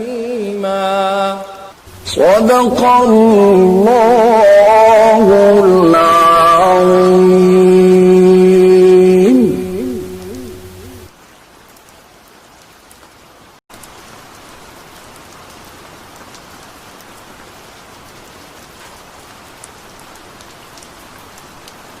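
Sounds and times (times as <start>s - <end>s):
steady rain hiss: 0.0s - 22.0s
single raindrops ticking: 18.8s - 22.0s.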